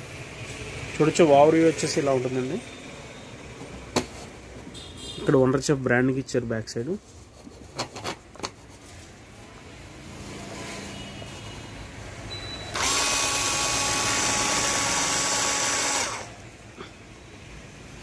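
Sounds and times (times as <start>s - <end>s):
small electric motor whirring: 12.7s - 16.4s.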